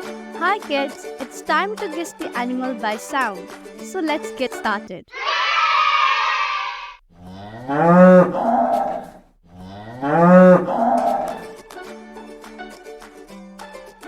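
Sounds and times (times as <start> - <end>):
cow mooing: 5.4 - 11.4.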